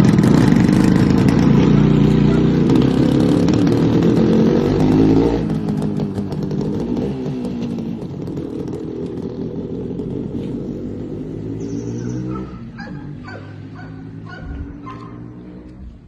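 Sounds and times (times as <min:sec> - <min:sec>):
motorcycle engine running: 0:00.0 - 0:16.0
dog barking: 0:02.1 - 0:02.6, 0:12.0 - 0:15.3.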